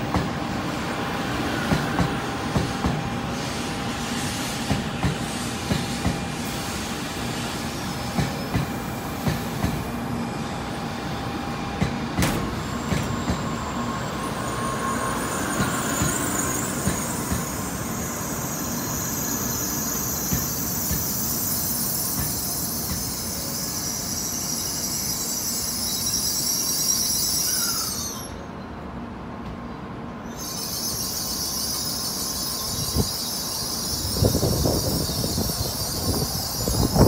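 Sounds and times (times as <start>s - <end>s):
train rolling with wheel clacks: 0.0s - 10.4s, 11.2s - 27.8s, 30.4s - 37.0s
high-pitched brake squeal: 12.5s - 28.8s, 30.2s - 37.0s.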